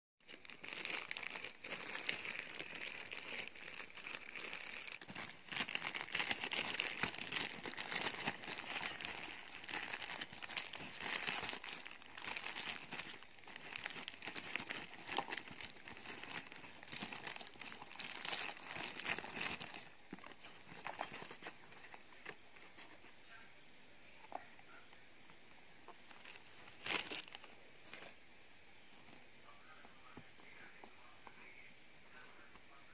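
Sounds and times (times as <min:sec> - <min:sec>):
packaging crinkling and rustling: 0:00.2 - 0:23.1, 0:25.9 - 0:28.2.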